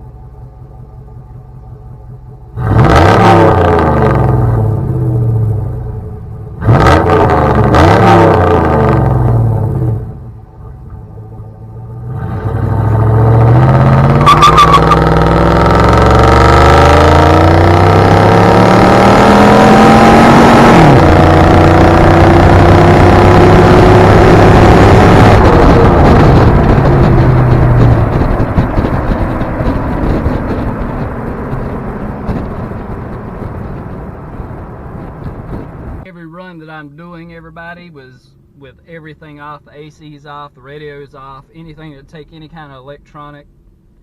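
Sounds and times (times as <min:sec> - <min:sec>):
pickup truck engine accelerating: 0:00.0 - 0:36.0
short beep: 0:14.2 - 0:15.0.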